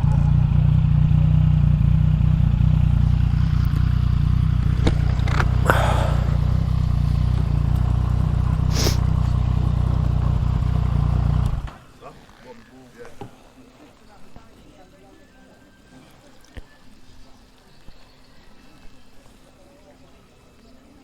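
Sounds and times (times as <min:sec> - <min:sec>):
motorcycle engine idling: 0:00.0 - 0:12.8
short scraping rustle: 0:08.6 - 0:09.4.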